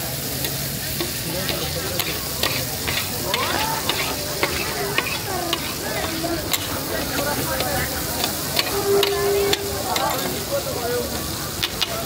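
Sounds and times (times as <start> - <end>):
food sizzling: 0.0 - 12.0
spatula clinking against pan: 0.4 - 10.4.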